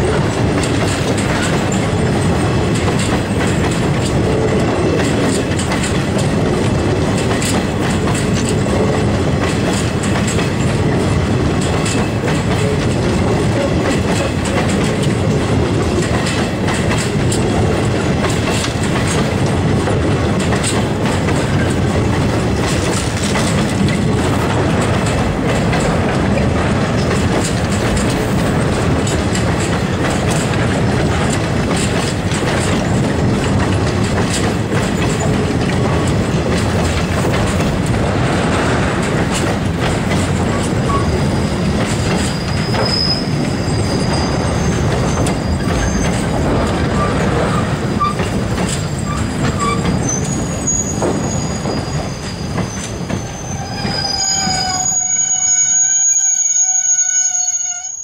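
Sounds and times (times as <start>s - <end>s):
freight train rumble and clatter: 0.0s - 58.0s
strong pitched wheel squeal: 40.5s - 46.3s, 48.8s - 58.0s
high wheel squeals: 40.9s - 46.3s, 48.0s - 58.0s.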